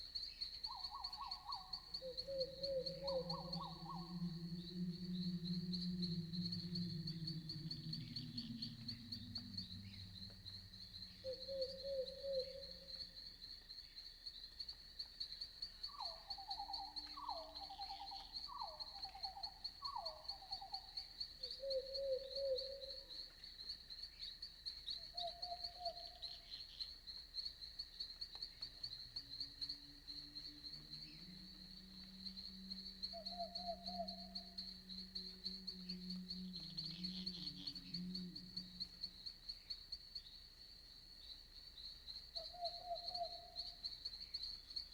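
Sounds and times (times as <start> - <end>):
crickets chirping: 0.0 - 44.9
low sound: 2.8 - 10.8.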